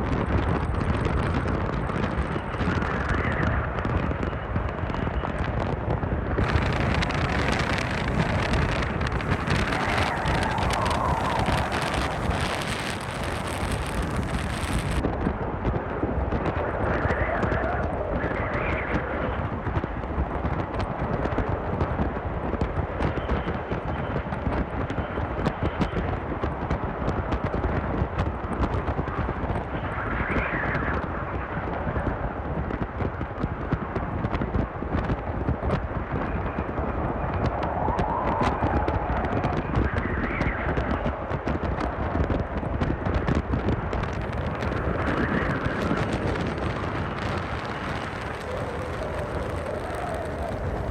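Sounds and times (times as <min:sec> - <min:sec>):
strong wind gusts: 0:00.0 - 0:50.9
tent fabric flapping and rattling: 0:06.4 - 0:15.1, 0:43.1 - 0:50.9.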